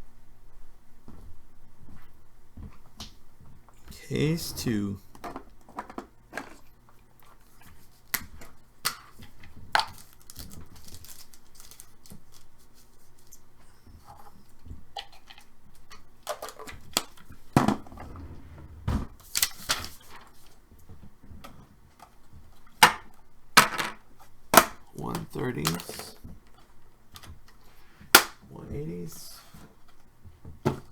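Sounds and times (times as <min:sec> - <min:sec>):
packaging ripping: 0:09.9 - 0:12.5
packaging clicks and taps: 0:24.6 - 0:26.2.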